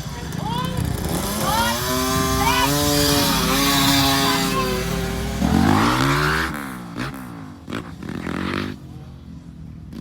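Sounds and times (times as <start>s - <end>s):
dirt bike engine revving: 0.2s - 9.1s.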